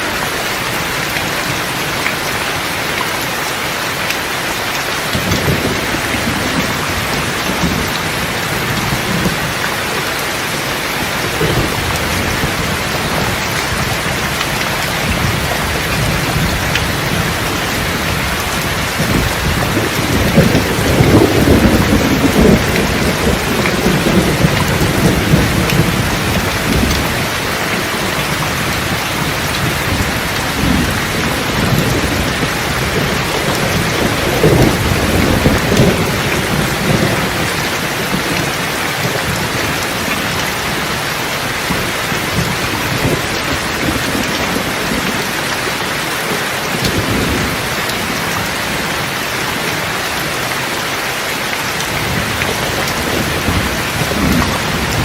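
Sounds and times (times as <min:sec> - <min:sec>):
heavy rain hissing: 0:00.0 - 0:55.0
rolling thunder: 0:05.1 - 0:09.9, 0:10.5 - 0:45.7, 0:51.9 - 0:55.0.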